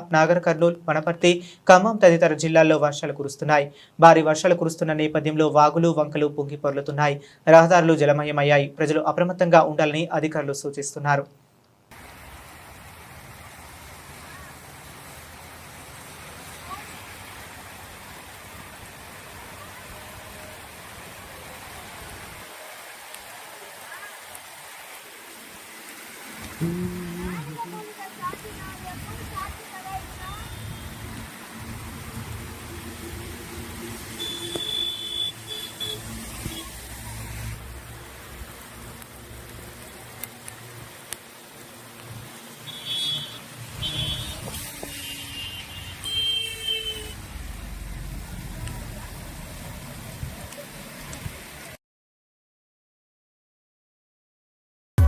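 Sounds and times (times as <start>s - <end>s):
heavy rain on hard surfaces: 11.9s - 51.8s
road traffic on wet streets: 11.9s - 51.8s.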